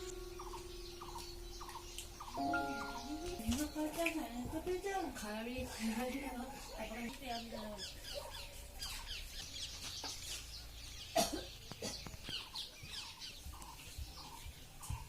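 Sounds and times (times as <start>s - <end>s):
sharp bird call: 0.0s - 3.4s
birds chirping: 0.0s - 15.0s.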